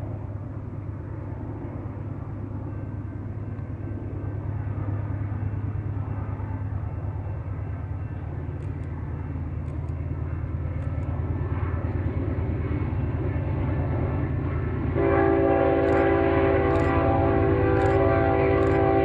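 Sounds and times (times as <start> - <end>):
locomotive rumble: 0.0 - 19.0
faint regular clicks: 8.5 - 9.0, 9.6 - 10.0, 15.8 - 16.1, 16.7 - 17.0, 17.8 - 18.8
locomotive horn chord: 15.0 - 19.0.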